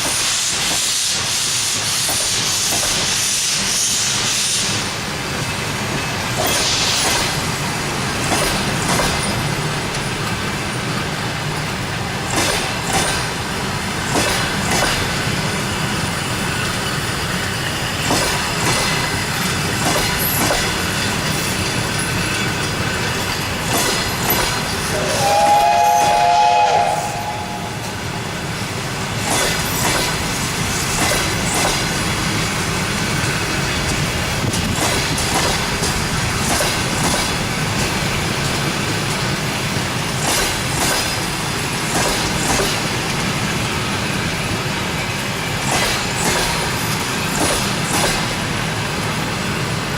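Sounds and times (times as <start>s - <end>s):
train carriages rumbling past: 0.0s - 49.9s
train whistle: 24.9s - 28.0s.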